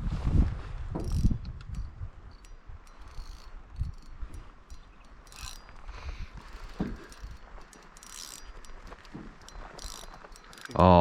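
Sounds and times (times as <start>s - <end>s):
fishing reel clicking: 1.0s - 10.8s
small knocks: 6.4s - 10.8s
dull thump: 6.8s - 7.1s.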